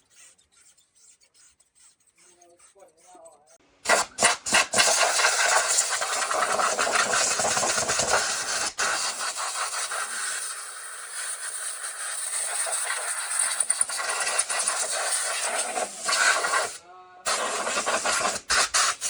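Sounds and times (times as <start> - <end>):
air hissing: 3.8 - 19.0.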